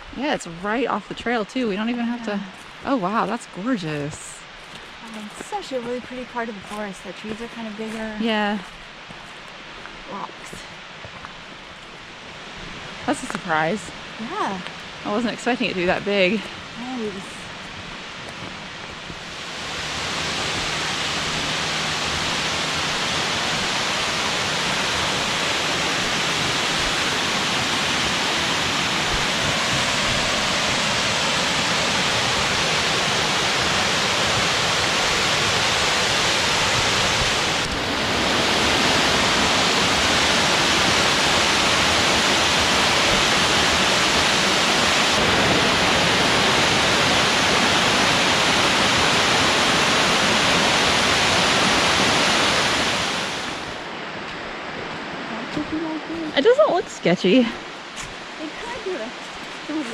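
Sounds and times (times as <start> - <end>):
waterfall rushing loudly: 12.4 - 59.9.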